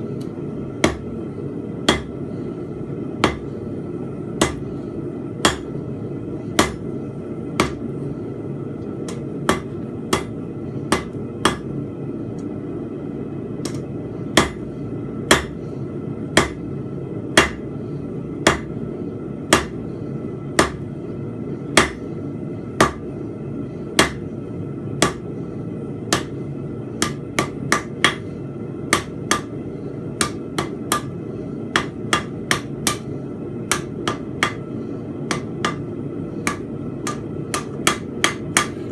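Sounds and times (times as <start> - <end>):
hammer striking metal on anvil: 1.9 - 2.2, 3.2 - 3.4, 4.4 - 4.6, 5.4 - 5.7, 6.6 - 6.9, 9.1 - 11.7, 15.3 - 15.6, 17.4 - 17.6, 18.4 - 18.7, 19.5 - 19.8, 20.6 - 20.8, 22.8 - 23.0, 24.0 - 24.2, 25.0 - 25.2, 26.1 - 26.4, 27.0 - 28.2, 28.9 - 29.6, 30.2 - 31.2, 31.8 - 33.1, 33.7 - 34.6, 35.3 - 35.8, 36.4 - 38.8
low rush of noise: 28.2 - 38.9.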